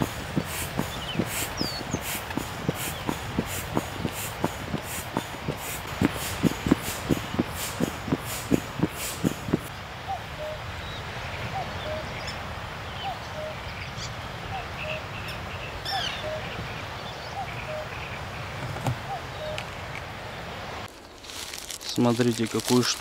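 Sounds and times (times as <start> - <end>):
high bird chirps: 0.0 - 5.4
steady rushing background: 0.0 - 9.7.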